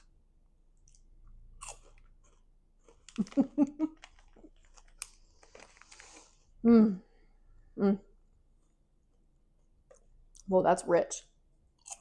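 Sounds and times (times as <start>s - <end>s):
chewing and crunching popcorn: 0.7s - 6.4s, 11.7s - 12.0s.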